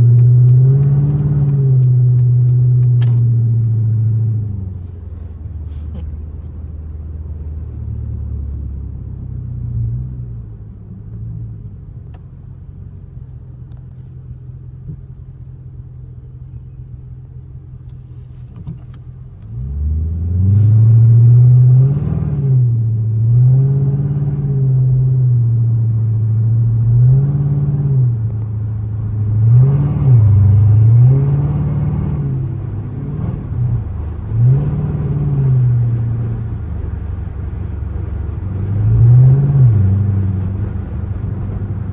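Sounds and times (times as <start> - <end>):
loud car exhaust revving: 0.0 - 5.4, 29.0 - 41.9.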